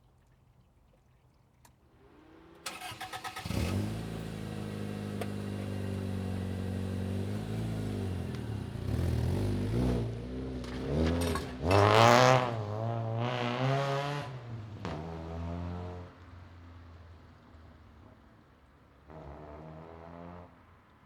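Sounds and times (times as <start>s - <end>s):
car engine idling: 2.7s - 9.4s
engine revving: 2.7s - 15.9s.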